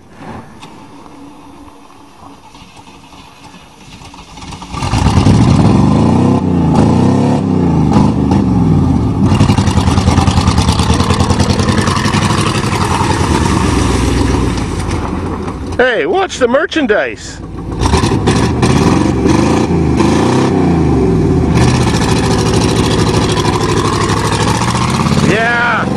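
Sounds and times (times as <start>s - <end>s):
pickup truck engine revving: 3.9s - 15.8s, 17.6s - 25.9s.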